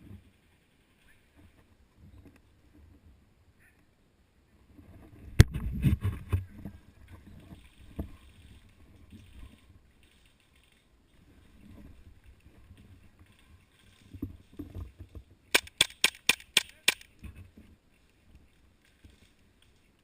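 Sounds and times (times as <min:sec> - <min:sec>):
airsoft gun firing shots: 0:15.5 - 0:17.1.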